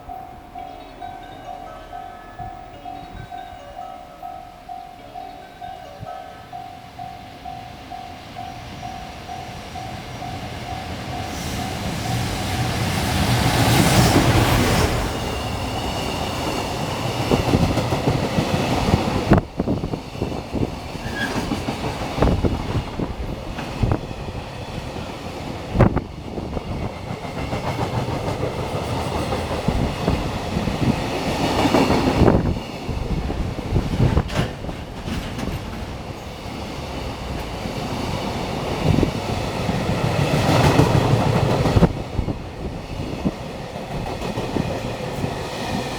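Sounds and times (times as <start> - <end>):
level crossing bell: 0.0 - 11.9
freight train passing: 0.0 - 45.9
wagons clacking over rail joints: 9.9 - 45.9.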